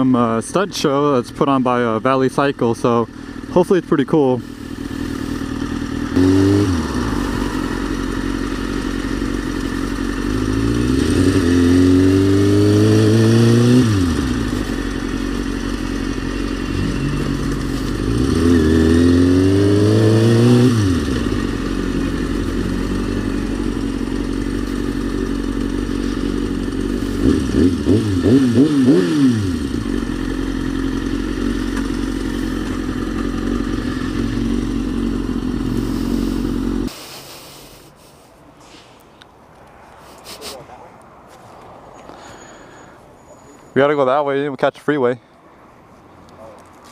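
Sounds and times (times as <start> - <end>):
motorcycle engine revving: 1.7 - 37.0.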